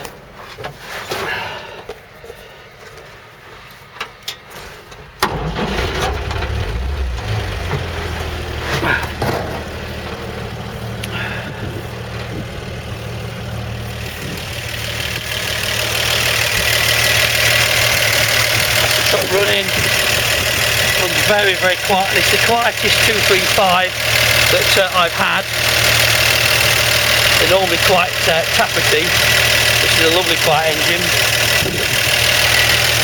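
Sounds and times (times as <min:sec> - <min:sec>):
car engine starting and idling: 0:04.9 - 0:33.0.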